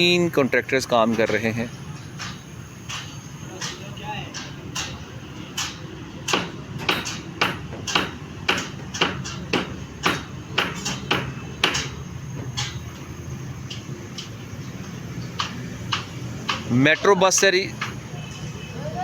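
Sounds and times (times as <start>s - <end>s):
hammer striking formwork: 2.2s - 12.9s, 15.4s - 17.1s.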